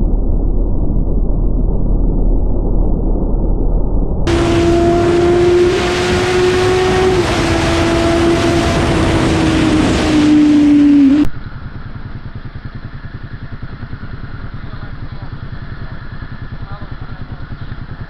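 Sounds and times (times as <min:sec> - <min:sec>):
rushing wind noise: 0:04.3 - 0:11.3
motorcycle engine at speed: 0:04.3 - 0:18.0
motorcycle engine pulsing: 0:04.3 - 0:18.0.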